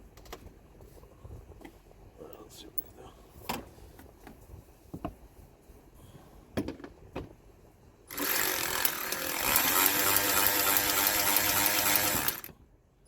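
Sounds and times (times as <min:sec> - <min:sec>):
power driver running: 0:08.1 - 0:12.5.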